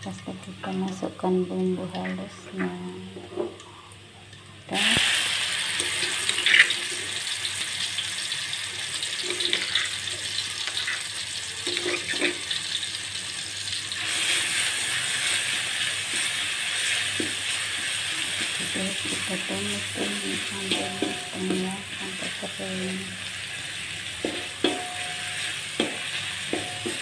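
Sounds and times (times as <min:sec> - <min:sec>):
paste sizzling in hot oil: 0:04.7 - 0:27.0
metal spatula scraping wok: 0:05.8 - 0:07.0, 0:09.2 - 0:12.6, 0:24.1 - 0:27.0.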